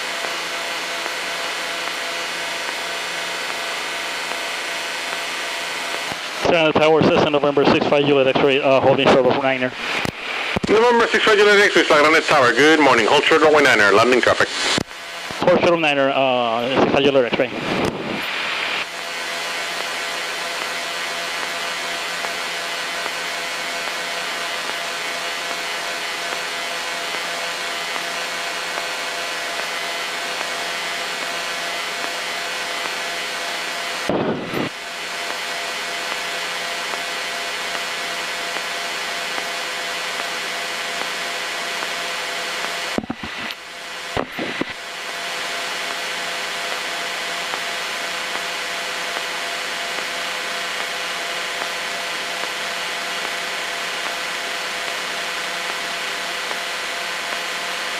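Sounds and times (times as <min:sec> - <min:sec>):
aircraft engine idling: 0:18.3 - 0:57.9.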